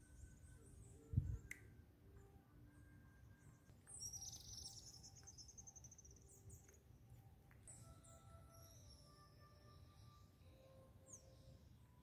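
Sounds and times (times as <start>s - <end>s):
bird high-pitched trill: 3.3s - 6.4s, 7.7s - 11.8s.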